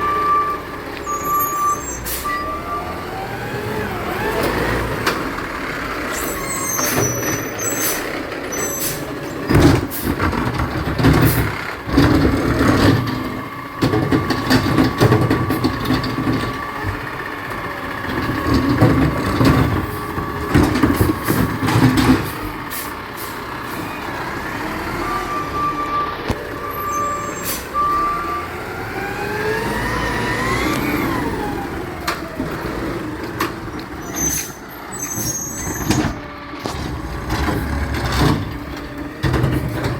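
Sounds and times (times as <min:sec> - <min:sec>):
short beeps: 0:00.0 - 0:02.9
garbage truck diesel engine: 0:00.0 - 0:39.9
loud knocks and clattering: 0:09.3 - 0:17.3, 0:18.0 - 0:22.7, 0:35.2 - 0:39.9.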